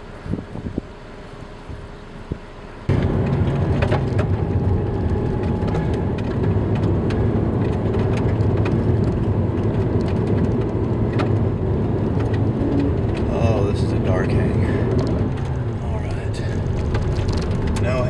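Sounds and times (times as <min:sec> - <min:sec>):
road and wind noise: 0:00.0 - 0:18.0
rain ticking on vehicle: 0:02.9 - 0:18.0.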